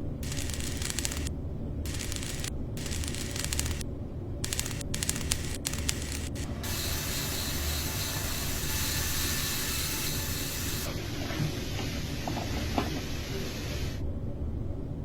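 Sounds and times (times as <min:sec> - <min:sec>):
sharp clicks: 0:00.2 - 0:01.3, 0:01.9 - 0:03.8, 0:04.4 - 0:06.6
spraying hiss: 0:04.5 - 0:10.9.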